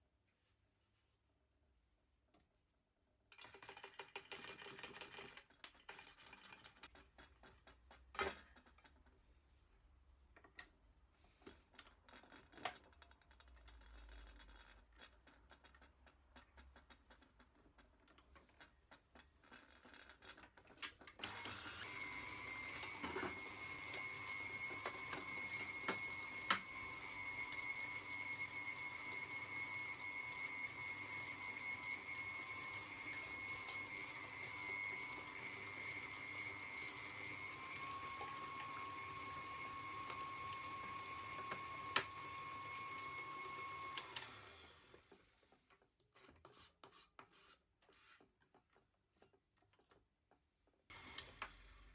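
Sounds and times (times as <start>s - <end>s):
electric mixer whining: 21.2s - 45.3s, 50.9s - 51.9s.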